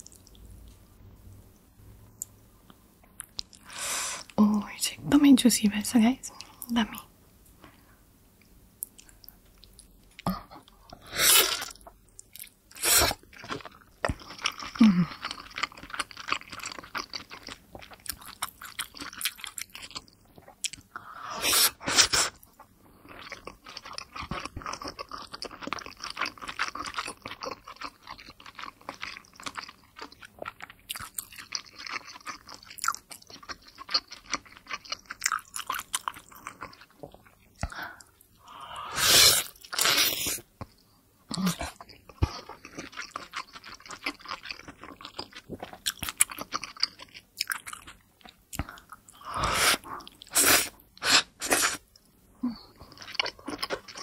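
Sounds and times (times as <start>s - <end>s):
close-miked wet chewing: 11.6s - 20.9s, 23.0s - 38.6s, 39.4s - 50.4s.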